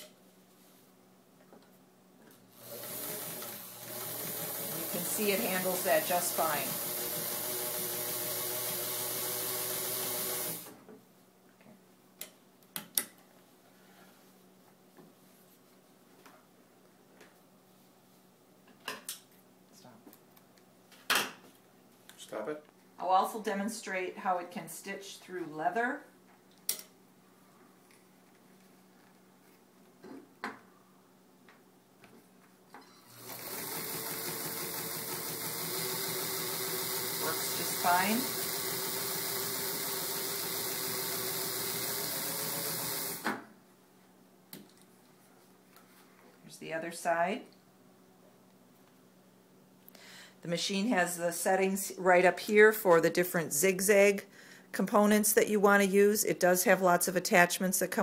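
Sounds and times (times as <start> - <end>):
sewing machine running: 2.6 - 10.7, 33.0 - 43.2.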